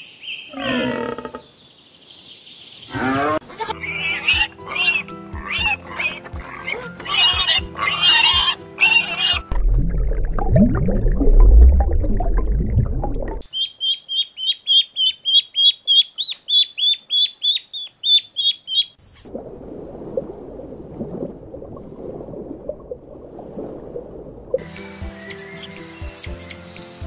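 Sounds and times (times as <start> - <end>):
bird chirping rapidly: 13.5 - 19.0, 25.2 - 26.6.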